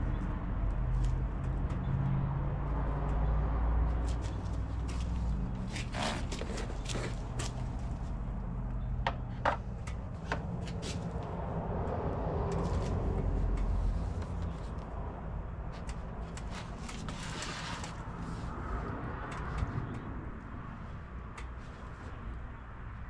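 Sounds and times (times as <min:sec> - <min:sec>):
rubbing and shuffling: 0:15.8 - 0:18.6.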